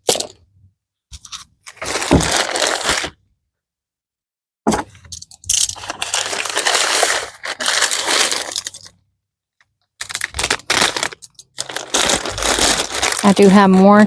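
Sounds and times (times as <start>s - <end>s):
plastic packaging crinkling: 1.2s - 3.2s, 5.5s - 9.0s, 10.0s - 14.0s.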